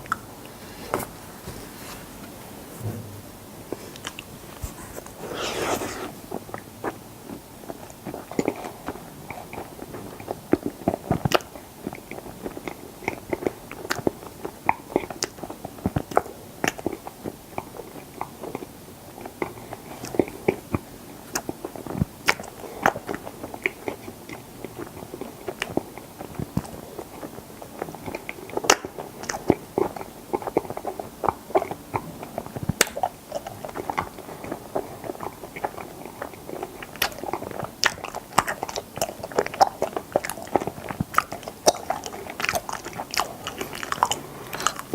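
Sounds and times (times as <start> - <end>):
wet sticky chewing: 27.8 - 44.9.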